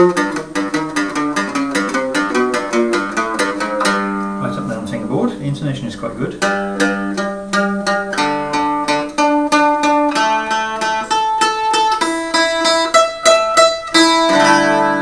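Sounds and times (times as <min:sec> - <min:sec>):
bouzouki picking single notes: 0:00.0 - 0:15.0.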